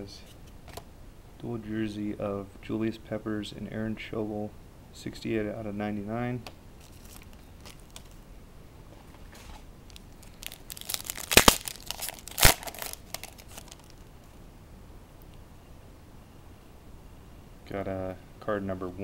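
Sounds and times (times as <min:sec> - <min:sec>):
wrapper crinkling and tearing: 0:06.8 - 0:08.2, 0:09.9 - 0:14.1.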